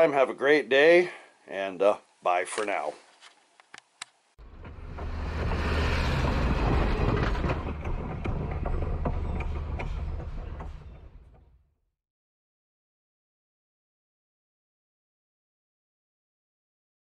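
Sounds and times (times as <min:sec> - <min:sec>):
train rumbling along track: 0:04.4 - 0:11.4.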